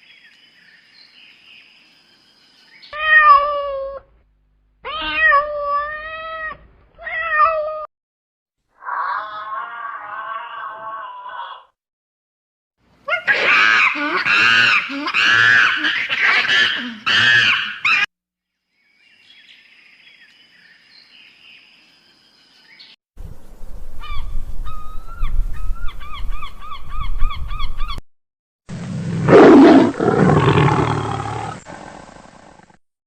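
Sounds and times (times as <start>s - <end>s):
loud pitched animal calls: 13.1s - 18.1s
loud deep animal call: 29.3s - 32.6s.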